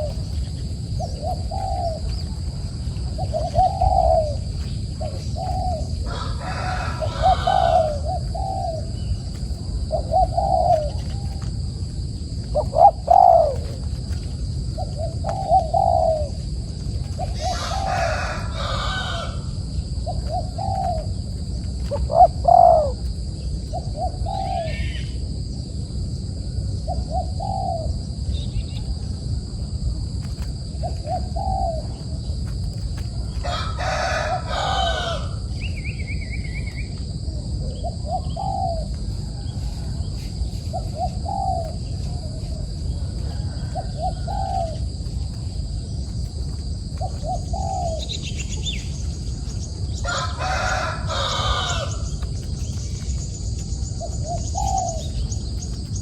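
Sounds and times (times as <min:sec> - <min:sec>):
steady low rumble: 0:00.0 - 0:56.0
rooster crowing: 0:05.4 - 0:08.2, 0:17.3 - 0:19.6, 0:33.2 - 0:35.8, 0:38.8 - 0:40.5, 0:42.6 - 0:44.9, 0:49.9 - 0:52.5.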